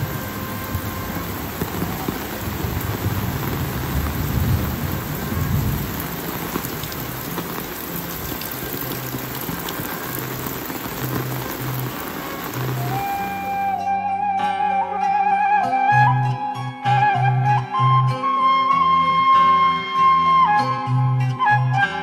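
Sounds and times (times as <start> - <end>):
rain falling: 0.0 - 13.9.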